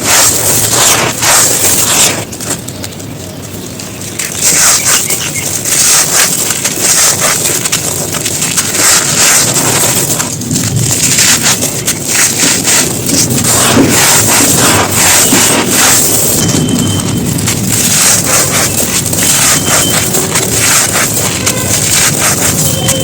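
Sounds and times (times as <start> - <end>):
dry material crunching: 0.0 - 23.0.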